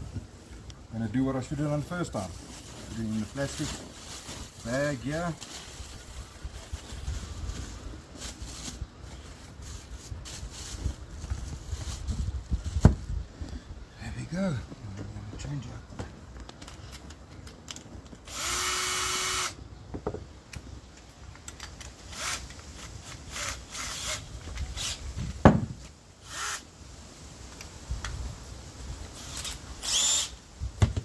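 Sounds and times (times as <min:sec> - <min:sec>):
tool handling clicks and knocks: 0:16.0 - 0:18.2, 0:20.0 - 0:23.3
power drill bursts: 0:18.3 - 0:19.6, 0:26.2 - 0:26.6, 0:29.2 - 0:30.4.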